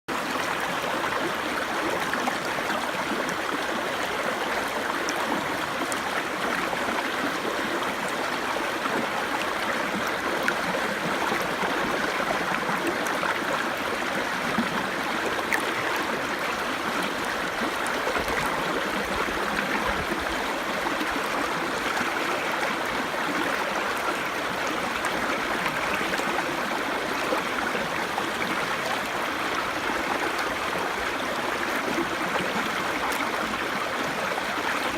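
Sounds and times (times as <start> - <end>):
brook babbling: 0.1 - 34.9.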